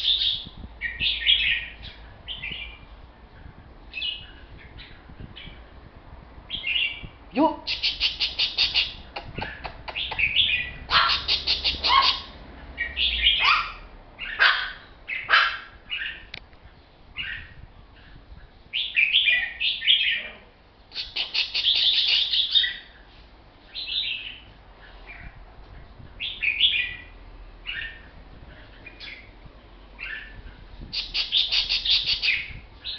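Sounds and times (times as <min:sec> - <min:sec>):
bulbul chattering calls: 0:07.7 - 0:16.3, 0:20.9 - 0:22.9, 0:30.0 - 0:32.9.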